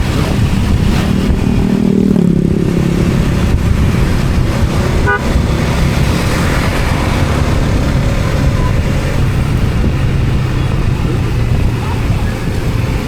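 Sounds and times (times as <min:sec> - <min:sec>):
road vehicle rumble: 0:00.0 - 0:13.0
short horn toot: 0:05.0 - 0:05.3.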